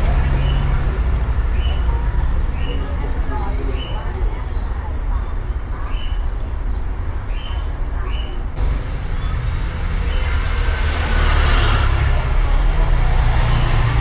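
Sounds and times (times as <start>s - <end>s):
passing vehicle: 0.0s - 3.4s, 8.6s - 14.0s
road traffic rumble: 0.0s - 14.0s.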